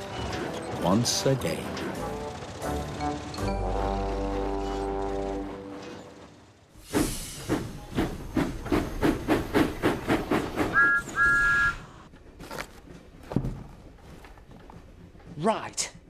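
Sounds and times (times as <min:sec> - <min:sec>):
steam locomotive chuffing: 0:00.0 - 0:16.0
steam hiss: 0:06.8 - 0:11.7
two-note whistle toots: 0:10.8 - 0:11.8.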